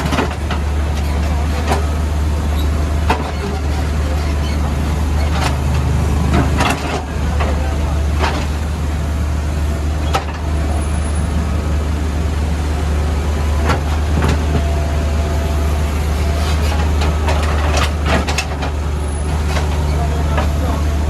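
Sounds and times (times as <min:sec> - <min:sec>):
knocks and clatter on road surface: 0:00.0 - 0:01.8, 0:03.0 - 0:04.6, 0:05.2 - 0:08.7, 0:16.6 - 0:20.6
diesel engine running: 0:00.0 - 0:21.0.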